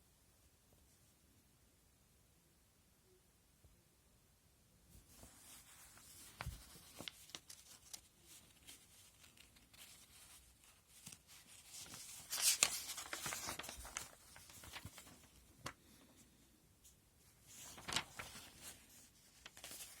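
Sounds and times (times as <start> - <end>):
packaging rustling: 5.9 - 15.8, 17.5 - 20.0.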